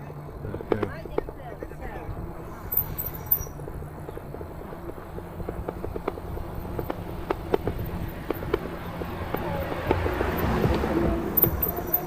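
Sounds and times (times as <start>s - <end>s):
wind and road rumble: 0.0s - 12.0s
sharp clicks and rattles: 2.7s - 12.0s.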